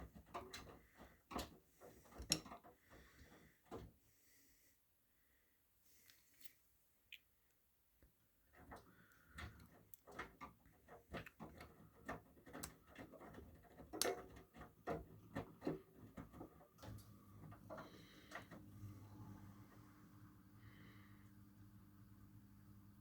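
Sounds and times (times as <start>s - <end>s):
washing machine motor hum: 8.5s - 23.0s.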